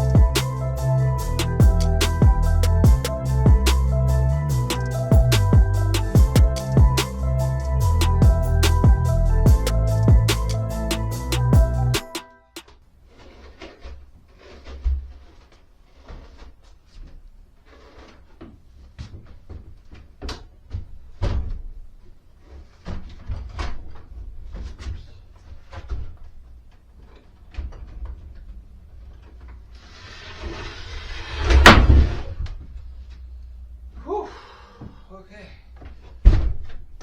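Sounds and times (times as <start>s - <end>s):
sliding rumble: 29.7s - 33.0s
loud bang: 30.7s - 32.4s.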